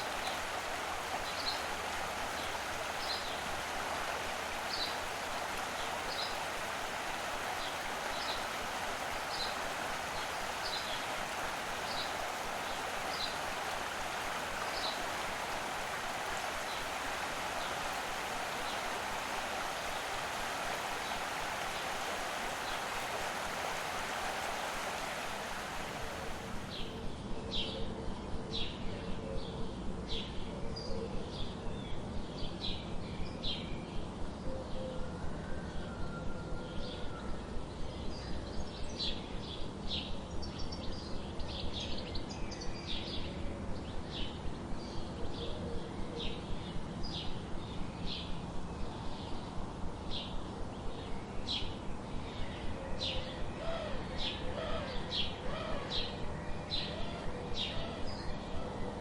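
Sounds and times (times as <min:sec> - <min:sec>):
running water rushing: 0:00.0 - 0:27.0
songbirds chirping: 0:00.0 - 0:59.0.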